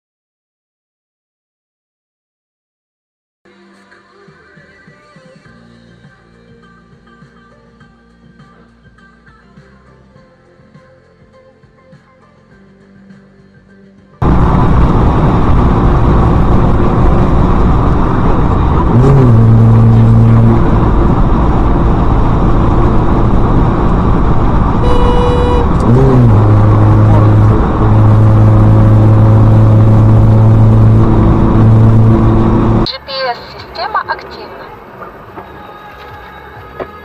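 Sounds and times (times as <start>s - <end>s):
low drawn-out tone: 14.2s - 32.9s
vehicle road and engine noise: 14.2s - 37.0s.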